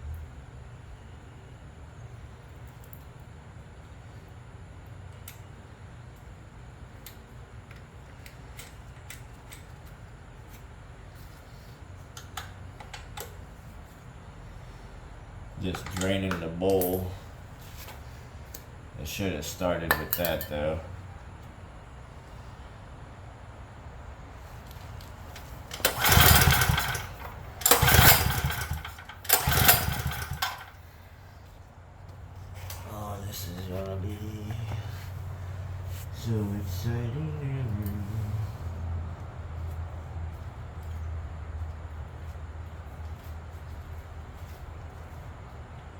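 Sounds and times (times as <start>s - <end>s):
steady low hum: 0.0s - 45.9s
hand tools tapping on metal: 19.9s - 20.6s
generator engine cranking: 25.2s - 31.0s.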